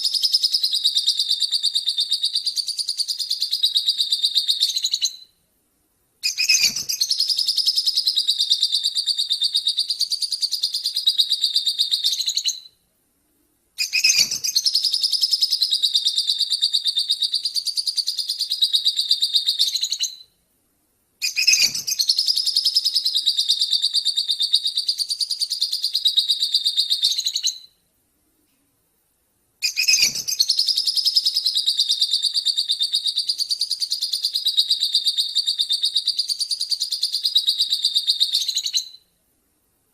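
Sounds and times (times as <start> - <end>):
songbird twittering song: 0.0 - 5.4, 6.2 - 12.8, 13.8 - 20.4, 21.2 - 27.8, 29.6 - 39.1
faint click: 28.4 - 28.8.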